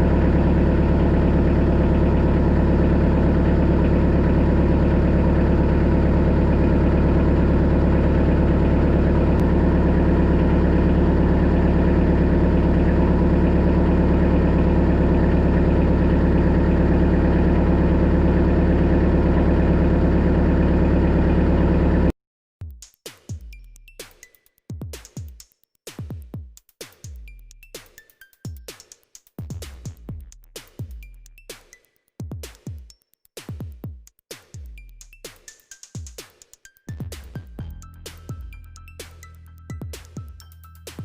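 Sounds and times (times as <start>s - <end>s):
tractor diesel engine running: 0.0s - 22.1s.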